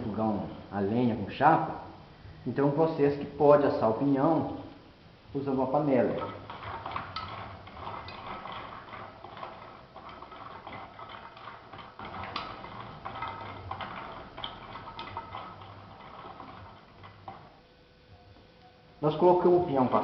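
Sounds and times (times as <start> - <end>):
seeds rattling in a cooking pot: 5.4 - 17.6.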